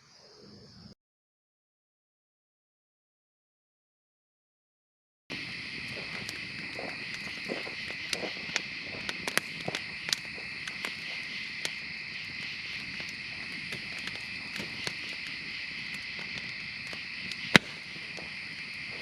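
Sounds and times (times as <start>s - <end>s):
night insects chirping: 0.0s - 1.0s, 5.3s - 19.0s.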